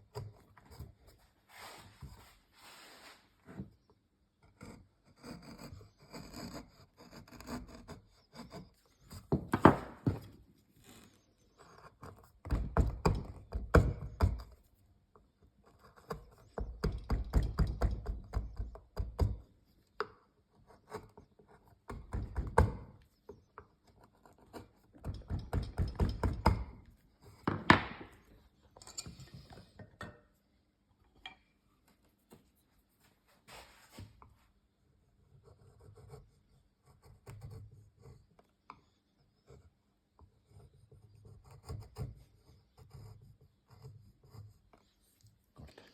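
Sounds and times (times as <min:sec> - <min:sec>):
rasping on wood: 0:04.6 - 0:09.3
wood knocks: 0:27.5 - 0:28.1.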